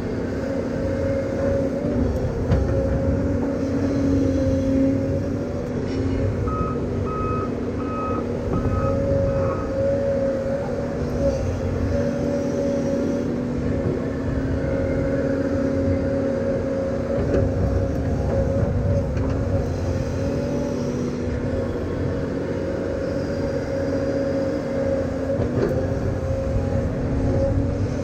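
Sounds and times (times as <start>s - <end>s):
heavy equipment engine running: 0.0s - 28.0s
backup alarm beeping: 6.5s - 9.0s.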